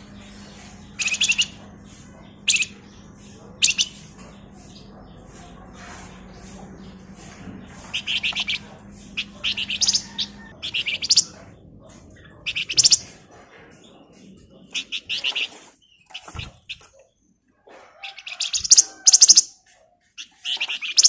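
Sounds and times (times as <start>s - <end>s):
bird singing trilled phrases: 0.0s - 1.6s, 2.4s - 4.9s, 7.8s - 11.4s, 12.2s - 13.2s, 18.0s - 19.5s, 20.2s - 21.0s.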